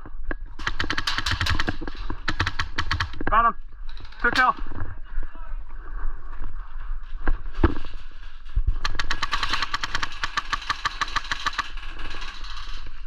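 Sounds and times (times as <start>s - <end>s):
airsoft gun full-auto burst: 0.6s - 3.2s, 8.8s - 12.0s
scattered knocks: 0.6s - 3.4s, 8.8s - 11.8s.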